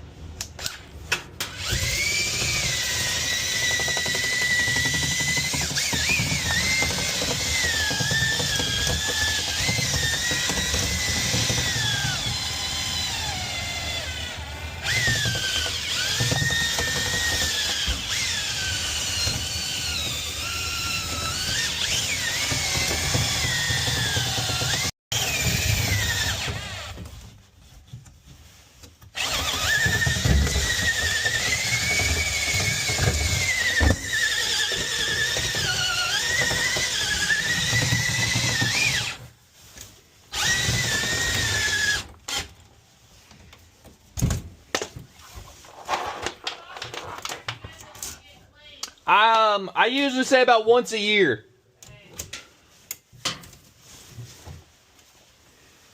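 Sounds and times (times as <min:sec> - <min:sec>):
power drill motor whine: 0:01.4 - 0:27.1, 0:29.2 - 0:39.2, 0:40.3 - 0:42.5.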